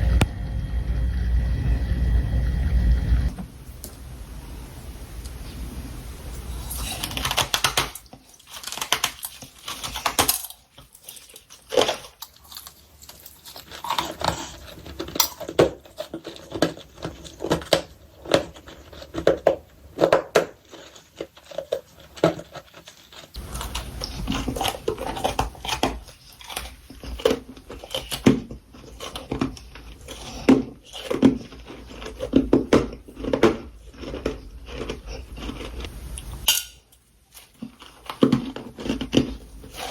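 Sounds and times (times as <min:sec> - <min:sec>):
frost being chewed crunching: 0:06.5 - 0:39.9.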